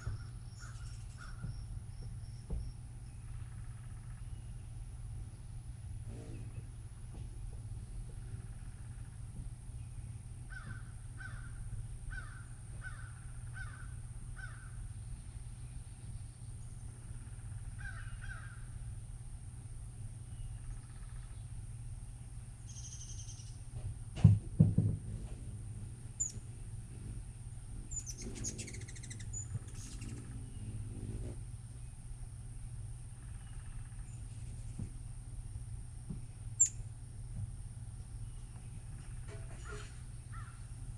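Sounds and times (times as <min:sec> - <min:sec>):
bird calling: 0:00.0 - 0:01.7, 0:10.5 - 0:15.0, 0:16.2 - 0:18.8, 0:22.6 - 0:23.6, 0:26.2 - 0:32.0, 0:36.6 - 0:36.8, 0:38.3 - 0:40.8
loud dull thump: 0:23.8 - 0:25.4.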